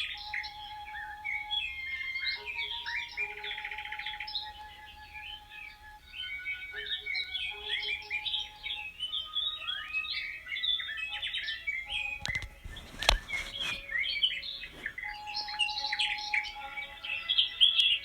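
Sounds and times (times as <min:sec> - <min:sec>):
songbirds chirping: 0:00.0 - 0:18.0
sharp clicks: 0:11.9 - 0:13.9.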